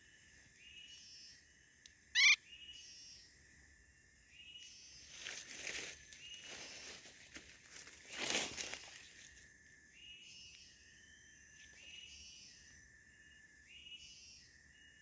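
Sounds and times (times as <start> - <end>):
high-pitched animal calls: 2.2 - 2.5.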